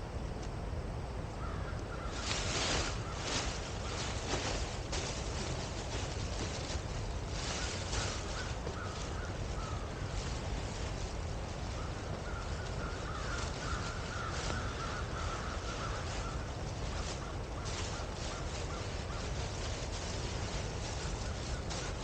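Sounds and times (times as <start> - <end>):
harsh crow-like bird calls: 1.4 - 4.6, 7.4 - 10.6, 11.7 - 19.6.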